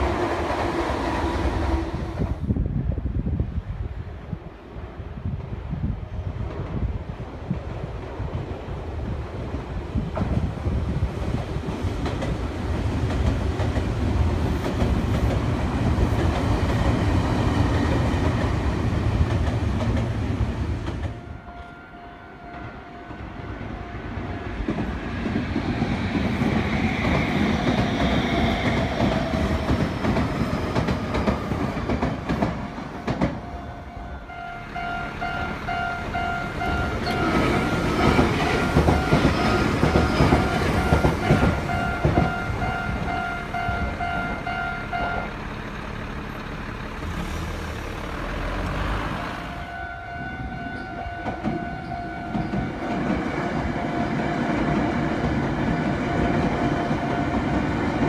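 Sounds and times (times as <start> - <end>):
electric trains passing: 0.0 - 58.0
level crossing warning bell: 21.1 - 24.7, 32.7 - 45.4, 49.5 - 54.2
wheels clattering over rail joints: 34.8 - 49.0.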